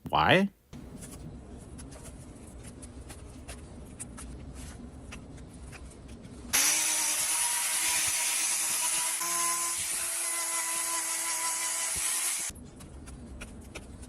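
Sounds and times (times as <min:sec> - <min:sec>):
power tool grinding hoof: 0:06.6 - 0:12.5.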